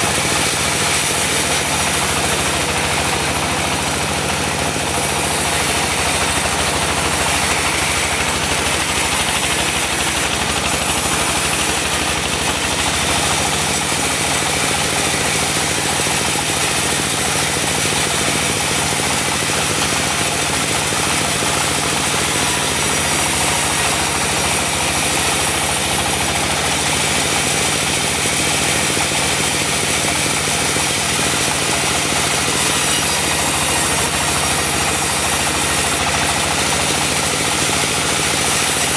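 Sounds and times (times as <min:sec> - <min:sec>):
diesel engine running: 0:00.0 - 0:38.9
sawmill machinery noise: 0:00.0 - 0:38.9.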